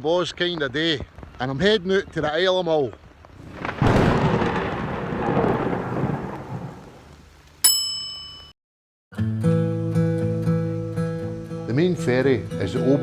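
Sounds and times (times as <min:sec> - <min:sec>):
thunder rumbling: 0:03.4 - 0:07.2
bright metallic ding: 0:07.6 - 0:08.6
acoustic guitar music: 0:09.2 - 0:13.0.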